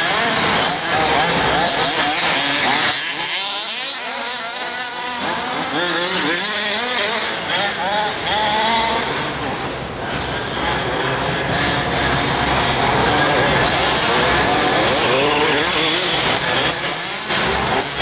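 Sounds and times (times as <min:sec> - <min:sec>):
crowd voices: 0:00.0 - 0:18.0
rc buggy engines revving: 0:00.0 - 0:18.0.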